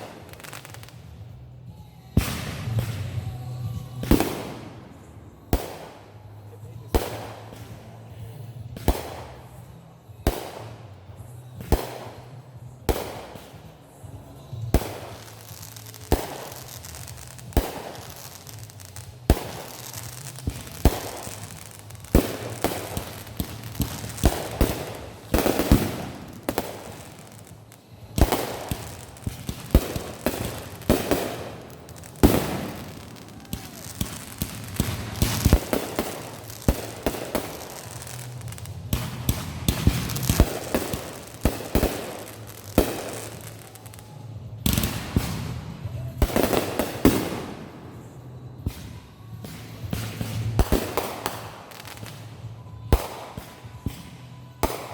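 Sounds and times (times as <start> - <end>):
fireworks banging: 0.0 - 1.4, 2.0 - 54.9
fireworks crackling: 0.0 - 54.9.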